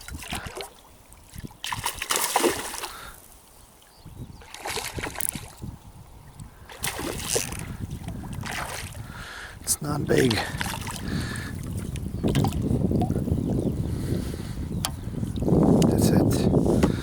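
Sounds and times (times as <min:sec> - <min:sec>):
water splashing and sloshing: 0:00.0 - 0:05.8, 0:06.6 - 0:13.6.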